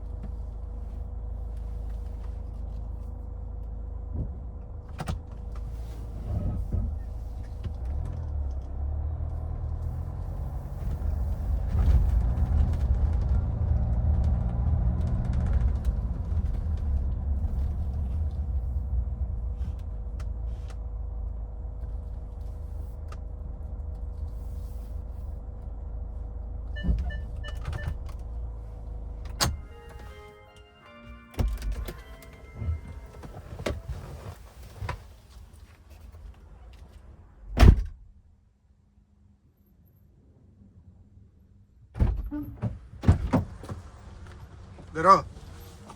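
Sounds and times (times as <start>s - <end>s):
car engine and road rumble: 0.0s - 45.9s
short beeps: 26.8s - 28.0s.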